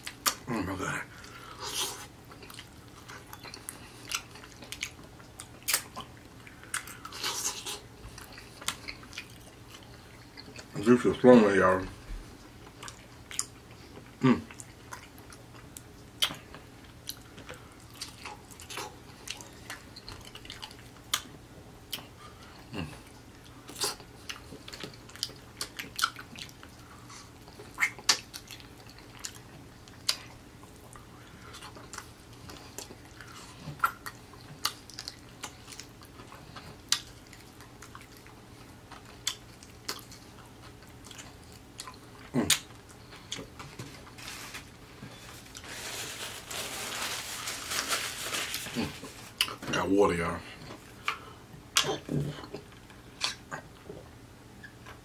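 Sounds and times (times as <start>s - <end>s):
person chewing chicken: 1.1s - 10.7s, 12.6s - 44.2s, 50.6s - 54.1s.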